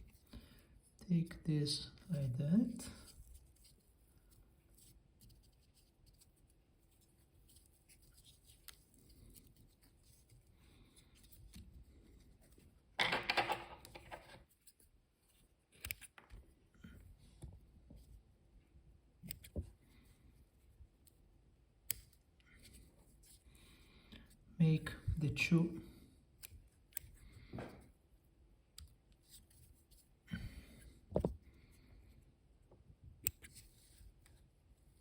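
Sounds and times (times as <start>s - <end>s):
faint handling noises: 2.0s - 24.4s.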